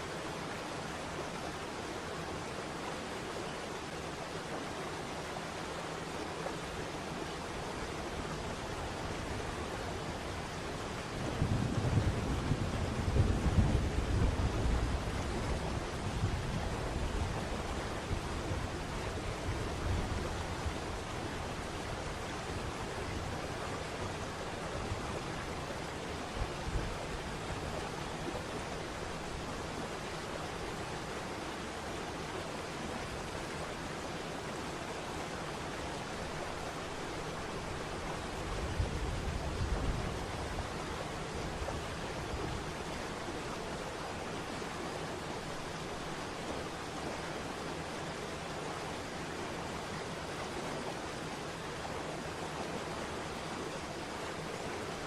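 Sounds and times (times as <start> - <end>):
falling water rushing: 12.6 - 55.0.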